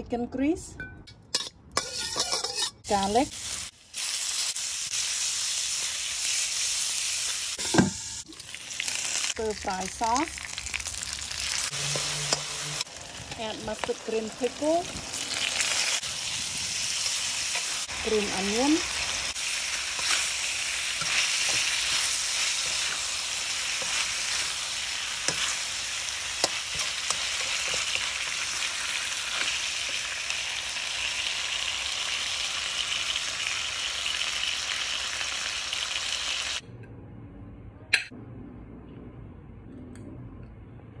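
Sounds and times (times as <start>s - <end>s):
metal spatula scraping a pan: 1.3s - 3.2s, 11.6s - 12.9s, 21.0s - 30.1s
food sizzling in a pan: 1.8s - 36.6s.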